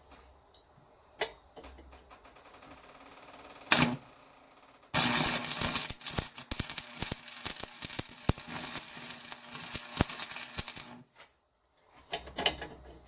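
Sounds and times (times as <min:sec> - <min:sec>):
arc welder crackling: 0:03.7 - 0:04.0, 0:05.0 - 0:11.1.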